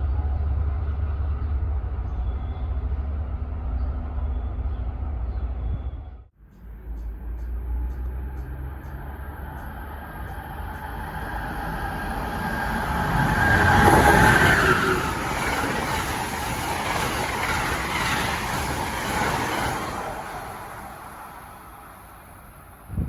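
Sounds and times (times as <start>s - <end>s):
train passing by: 0.0s - 23.0s.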